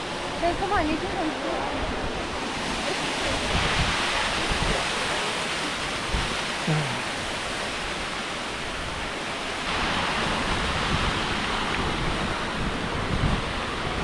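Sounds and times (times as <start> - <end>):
waterfall rushing: 0.0 - 14.0
wind buffeting microphone: 10.0 - 14.0.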